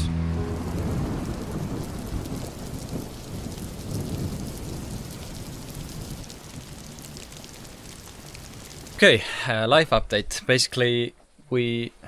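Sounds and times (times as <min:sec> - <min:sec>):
heavy rain falling: 0:00.0 - 0:09.6
low rumble of thunder: 0:00.4 - 0:09.0.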